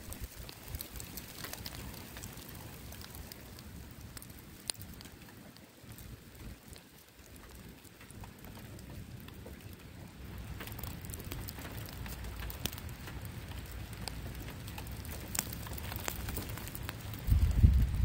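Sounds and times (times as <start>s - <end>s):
raindrops pattering: 0.0s - 18.0s
low rumble: 17.2s - 18.0s.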